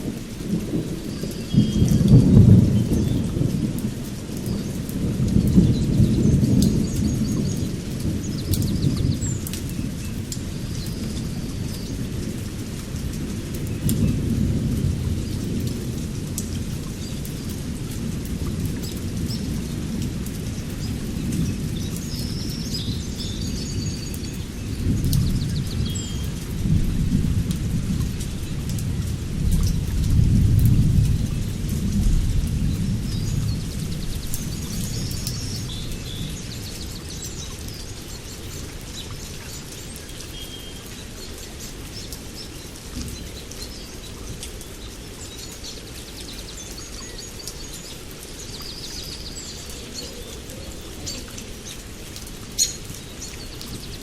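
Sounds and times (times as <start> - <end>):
rolling thunder: 0.0 - 12.3, 24.7 - 37.3
steady rain: 0.0 - 54.0.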